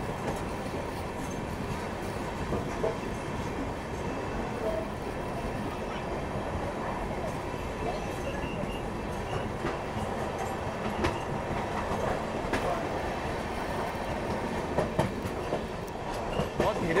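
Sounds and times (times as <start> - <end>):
train running rumble: 0.0 - 17.0
wheel clacks over rail joints: 14.3 - 17.0.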